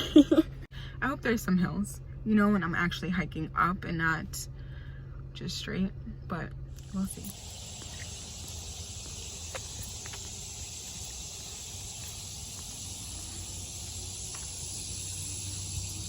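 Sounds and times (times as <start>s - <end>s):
low steady hum: 0.0s - 16.0s
insect chorus buzzing: 6.8s - 16.0s.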